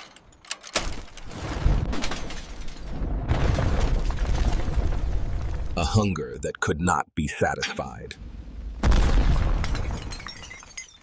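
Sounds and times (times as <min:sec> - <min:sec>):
crackling and crashing noises: 0:00.0 - 0:06.0.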